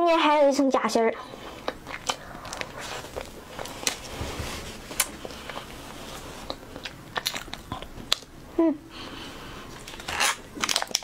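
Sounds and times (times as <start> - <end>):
person chewing cake: 1.4 - 4.1, 4.8 - 8.5, 9.4 - 11.0
wet mouth clicks and smacks: 1.6 - 3.3.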